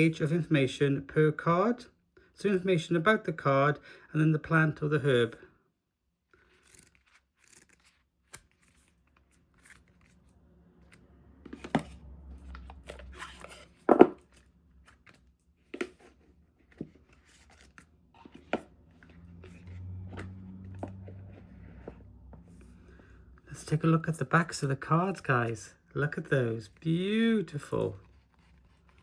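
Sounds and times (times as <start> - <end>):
cards and box being handled: 6.4 - 22.8, 24.4 - 29.0.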